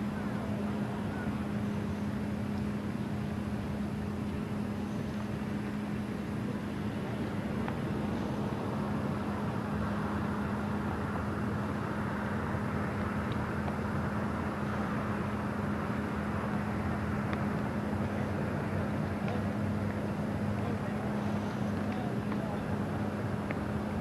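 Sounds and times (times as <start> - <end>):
constant rushing noise: 0.0 - 24.0
steady machine hum: 0.0 - 24.0.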